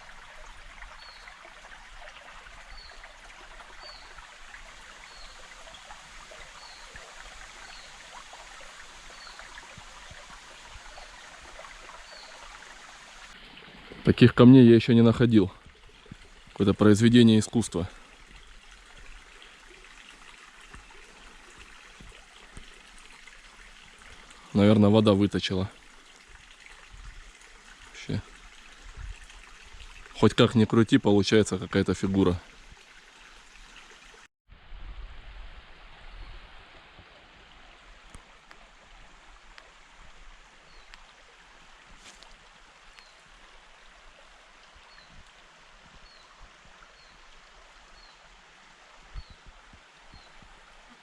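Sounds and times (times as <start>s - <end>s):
river running over rocks: 0.0s - 33.7s.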